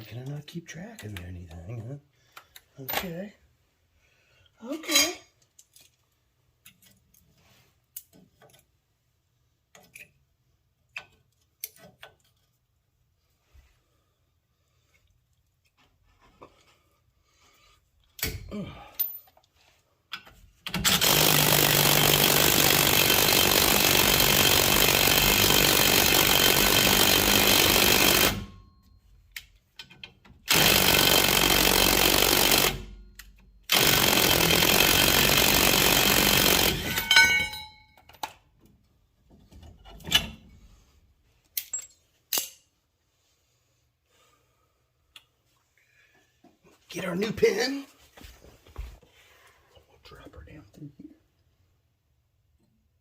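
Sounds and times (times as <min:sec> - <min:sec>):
pneumatic air tool bursts: 0:20.8 - 0:28.5, 0:30.5 - 0:32.9, 0:33.7 - 0:37.1
metal parts clanking: 0:36.8 - 0:38.4.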